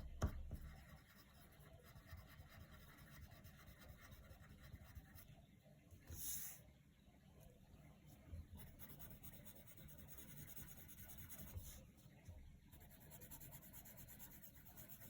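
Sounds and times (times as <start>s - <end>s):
pencil scratching on paper: 0.6s - 5.2s, 8.6s - 11.8s, 12.7s - 15.0s.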